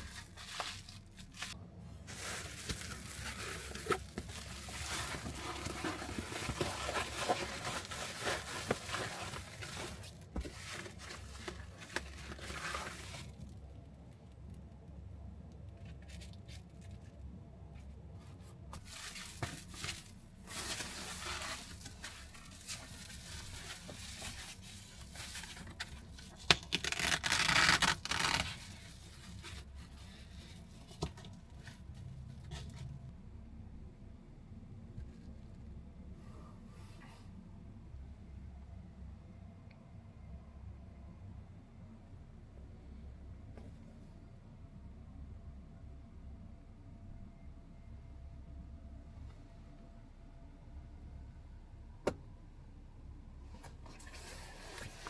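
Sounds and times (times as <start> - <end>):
rustling and crinkling: 0.0 - 33.1, 53.5 - 55.0.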